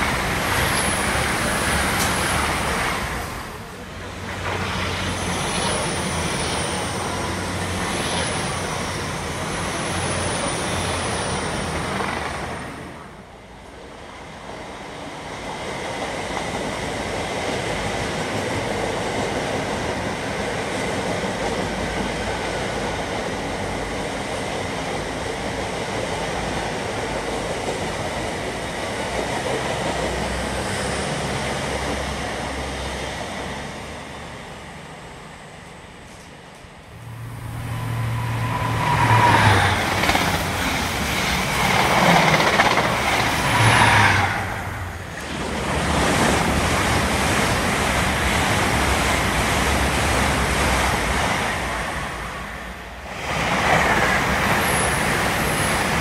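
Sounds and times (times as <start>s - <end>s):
train passing at speed: 0.0s - 56.0s
wheel-on-rail noise: 36.1s - 56.0s.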